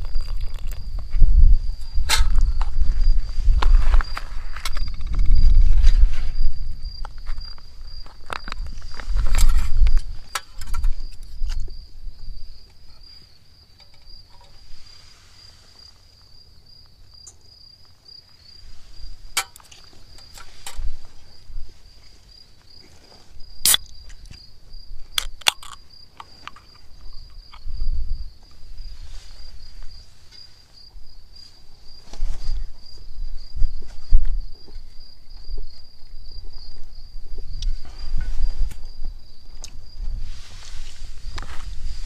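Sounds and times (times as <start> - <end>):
insect trilling: 0.0 - 5.6, 23.4 - 26.0
wind rumbling on microphone: 0.0 - 13.2, 18.6 - 42.0.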